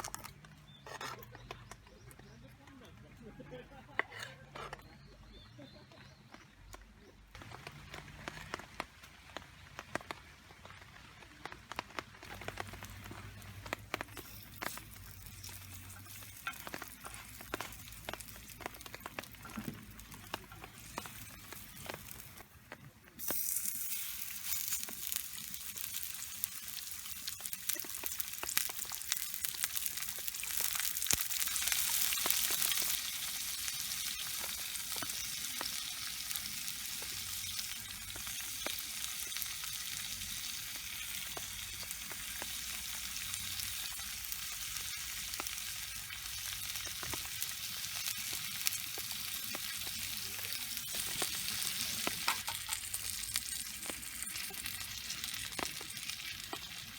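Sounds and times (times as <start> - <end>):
food sizzling in a skillet: 11.8 - 56.9.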